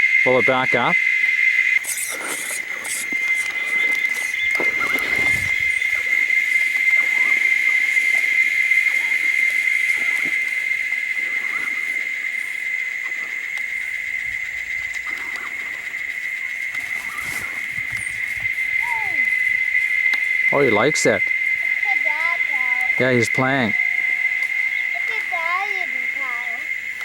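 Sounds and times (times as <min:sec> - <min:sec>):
insects buzzing: 0:00.0 - 0:27.0.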